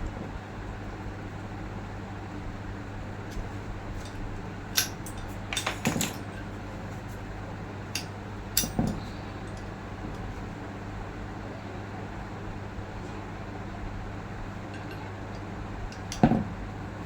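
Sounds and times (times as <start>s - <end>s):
steady low hum: 0.0s - 17.0s
metal parts clinking: 4.0s - 6.4s.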